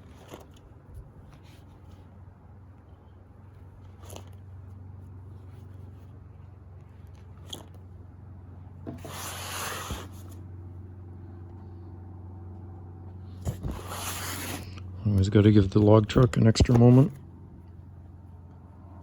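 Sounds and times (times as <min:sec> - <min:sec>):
steady low hum: 0:00.0 - 0:19.0
paper sliding and rustling: 0:08.9 - 0:10.4, 0:13.4 - 0:14.9.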